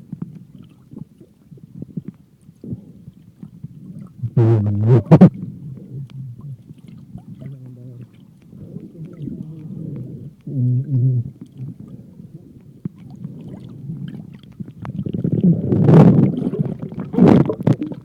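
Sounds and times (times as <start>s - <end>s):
muffled underwater rumble: 0.0s - 18.0s
short low hum: 4.2s - 5.4s
water rushing and sloshing: 11.3s - 18.0s.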